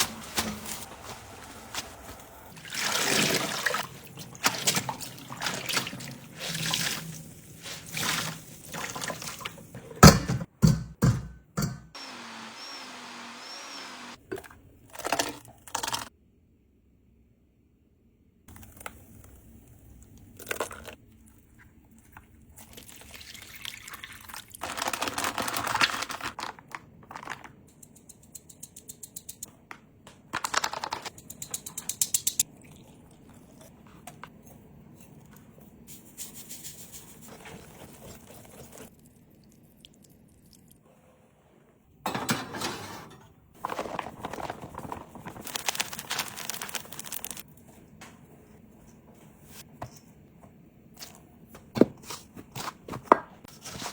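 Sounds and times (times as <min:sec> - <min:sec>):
liquid pouring and splashing: 0:02.5 - 0:09.7, 0:19.9 - 0:25.8, 0:32.4 - 0:33.8
crinkling: 0:24.6 - 0:28.0, 0:43.6 - 0:47.5
rapid clicking of utensils: 0:27.2 - 0:29.5, 0:30.4 - 0:32.4.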